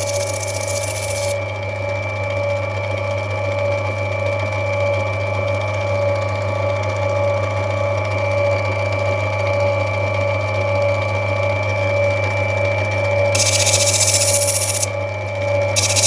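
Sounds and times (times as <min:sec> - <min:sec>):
grinding wheel whining: 0:00.0 - 0:01.4, 0:13.4 - 0:14.9, 0:15.8 - 0:16.0.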